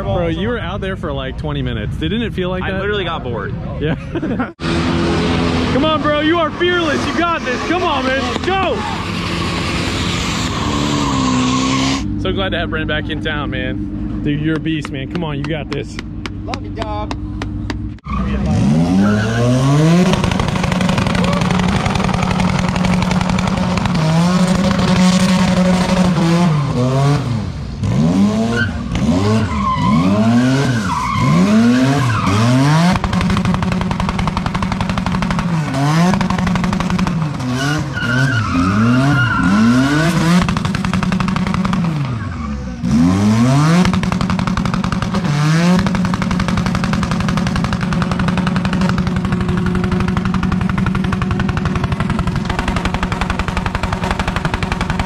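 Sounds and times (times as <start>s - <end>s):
car engine revving hard: 18.3s - 33.9s, 34.7s - 49.4s.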